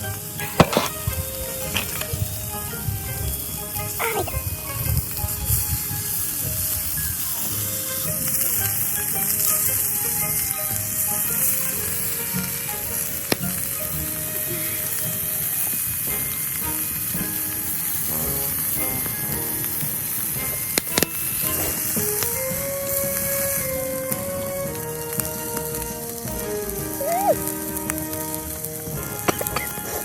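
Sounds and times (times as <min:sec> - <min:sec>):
background music: 0:00.0 - 0:30.0
meat sizzling on a grill: 0:00.0 - 0:30.0.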